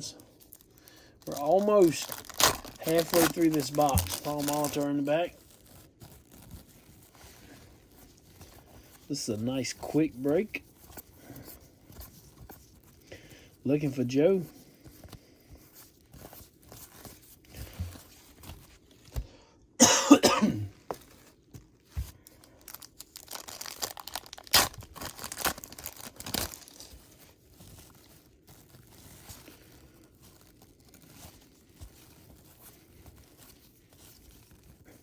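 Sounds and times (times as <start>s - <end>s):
cards rustling and clicking: 0.0s - 13.0s
person coughing: 19.8s - 20.8s.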